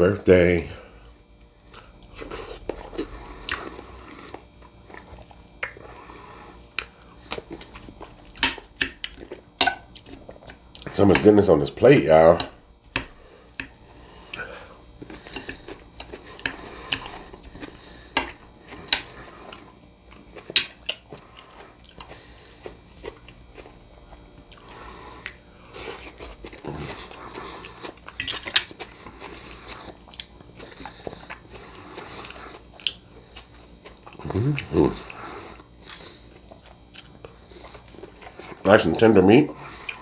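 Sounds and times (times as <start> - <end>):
person chewing food: 0.0 - 40.0
wet mouth clicks and smacks: 5.0 - 6.0, 6.7 - 10.9.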